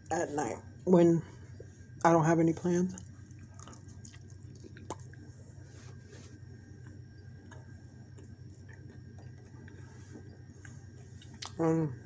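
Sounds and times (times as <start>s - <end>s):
steady low hum: 0.0s - 12.0s
quiet chewing: 2.9s - 11.6s
wet mouth clicks: 3.6s - 5.2s.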